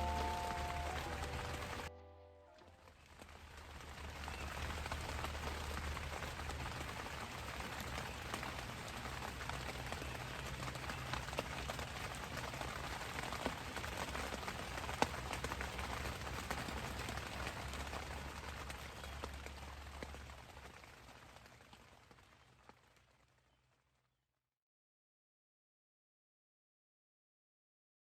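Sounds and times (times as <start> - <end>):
ambient hiss: 0.0 - 2.6.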